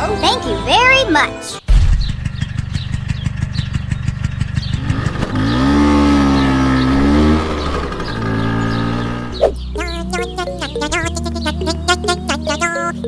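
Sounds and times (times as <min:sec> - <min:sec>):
music: 0:00.0 - 0:01.7, 0:09.4 - 0:13.0
tractor engine revving: 0:01.7 - 0:11.5.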